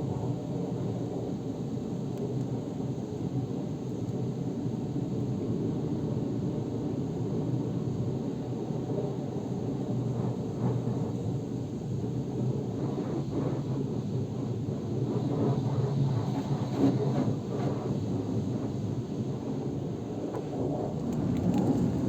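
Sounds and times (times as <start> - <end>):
water spraying on car body: 21.0 - 22.0.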